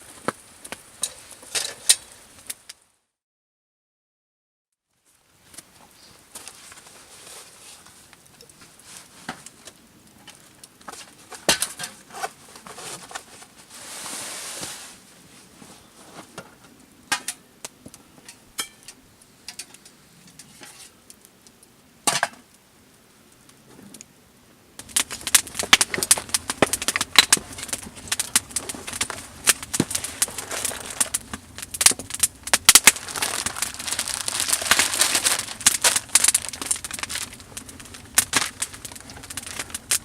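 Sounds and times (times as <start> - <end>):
rustle: 0.0 - 2.9, 4.9 - 40.0
crackling and crunching: 5.0 - 13.7, 24.8 - 40.0
pots and utensils clinking: 18.2 - 21.0.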